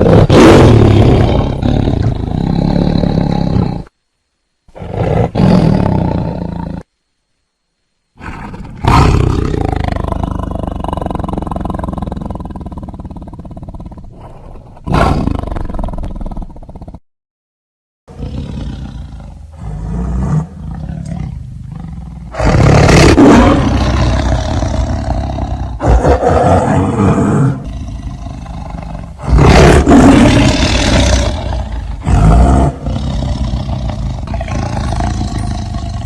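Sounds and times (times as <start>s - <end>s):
big cat roaring: 0.0s - 3.9s, 8.2s - 17.0s, 18.1s - 36.0s
low growling: 18.1s - 36.0s.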